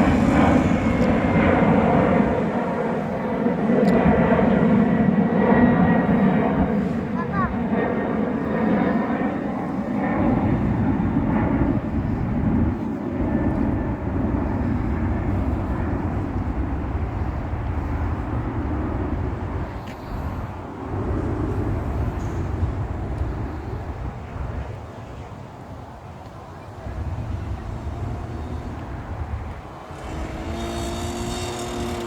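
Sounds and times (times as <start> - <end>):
motocross bike engine running: 26.8 - 32.0.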